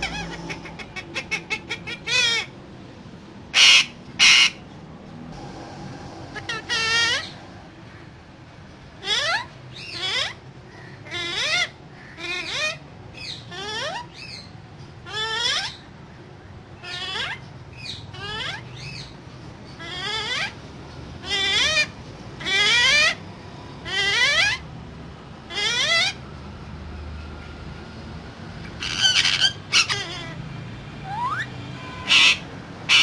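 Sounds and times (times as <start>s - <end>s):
parakeet harsh calls: 0.0s - 2.6s, 3.5s - 4.6s, 6.3s - 8.1s, 9.0s - 15.9s, 16.8s - 20.6s, 21.2s - 23.2s, 23.8s - 24.7s, 25.4s - 26.2s, 28.6s - 33.0s.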